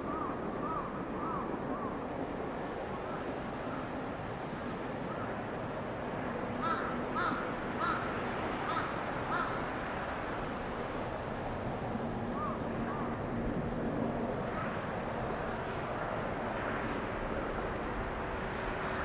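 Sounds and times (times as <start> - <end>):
crow cawing: 0.1 - 1.9, 6.6 - 9.7.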